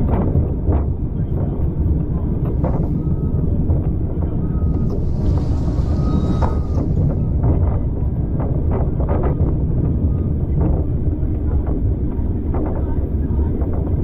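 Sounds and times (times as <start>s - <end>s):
train rumbling on track: 0.0s - 14.0s
clicks and knocks of track: 0.1s - 10.8s.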